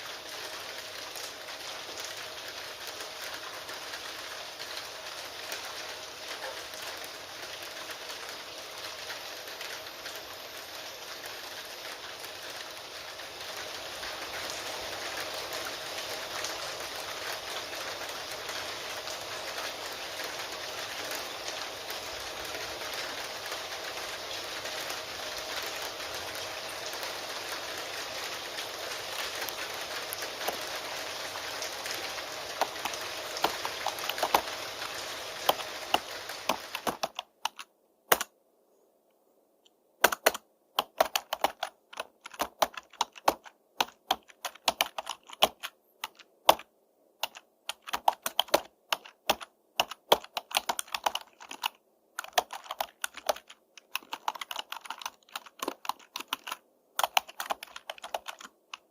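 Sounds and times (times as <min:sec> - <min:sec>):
steady rain: 0:00.0 - 0:38.3, 0:39.8 - 0:58.9
keyboard typing: 0:29.0 - 0:30.9, 0:31.7 - 0:38.3, 0:40.0 - 0:58.9.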